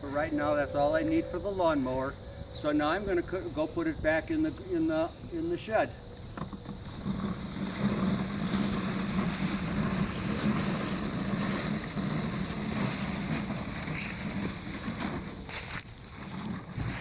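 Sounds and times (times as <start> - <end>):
lawnmower running: 6.3 - 17.0.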